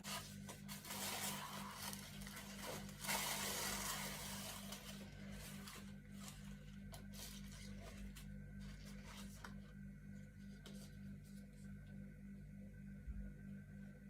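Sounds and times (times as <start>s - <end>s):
rustling and scratching: 0.0s - 9.8s
low electrical hum: 0.0s - 14.0s.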